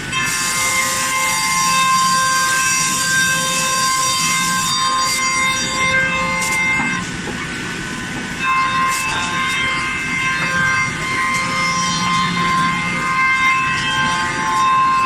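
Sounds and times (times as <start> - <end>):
router spindle whining: 0.0 - 15.0.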